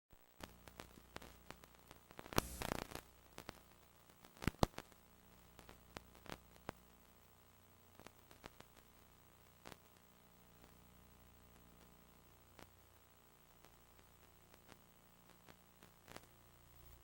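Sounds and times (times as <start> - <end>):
faint static hiss: 0.1 - 17.0
mains hum: 0.1 - 17.0
clicks and pops: 0.4 - 3.6
burst of crackle: 0.4 - 6.9, 7.9 - 10.8, 13.6 - 16.4.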